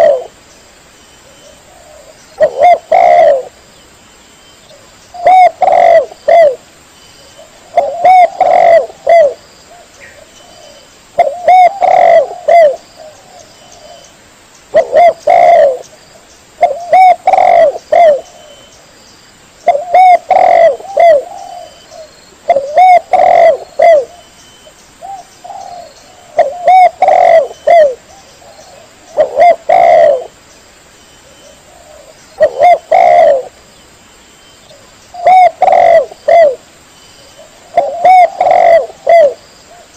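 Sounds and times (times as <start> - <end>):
dove cooing: 0.0 - 0.4, 1.2 - 3.6, 4.7 - 6.6, 7.2 - 14.1, 14.7 - 15.8, 16.6 - 18.7, 19.7 - 24.3, 25.0 - 30.4, 31.2 - 33.6, 34.7 - 36.6, 37.2 - 39.9.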